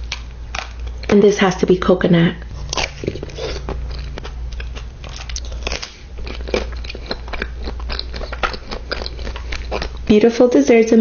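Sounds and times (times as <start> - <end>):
steady low hum: 0.0 - 11.0
person biting and chewing: 2.5 - 10.1.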